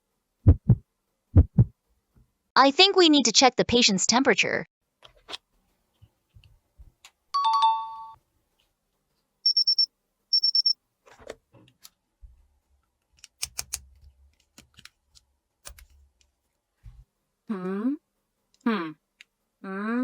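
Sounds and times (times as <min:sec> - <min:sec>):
rapid high-pitched beeps: 0:09.5 - 0:10.8.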